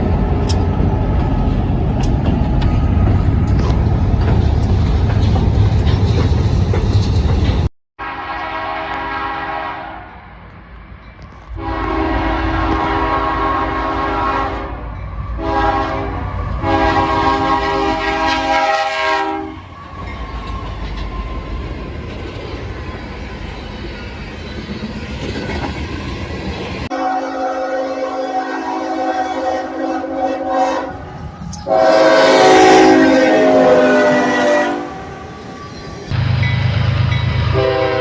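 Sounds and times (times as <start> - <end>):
passing train rumble: 0.0 - 38.0
locomotive air horn: 8.0 - 10.2, 11.6 - 19.7, 26.9 - 35.4, 37.5 - 38.0.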